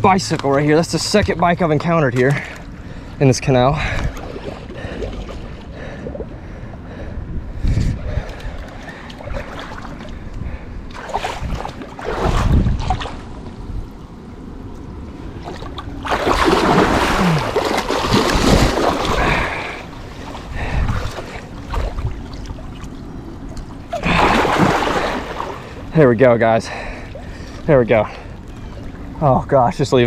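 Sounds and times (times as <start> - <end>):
water splashing and sloshing: 0.0 - 30.0
wind rumbling on microphone: 3.7 - 25.5.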